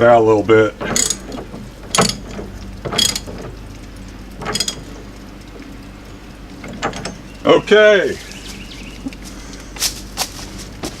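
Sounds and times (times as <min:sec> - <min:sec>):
faint steady hum: 0:00.0 - 0:11.0
wrench ratcheting: 0:00.8 - 0:03.6, 0:04.4 - 0:05.0.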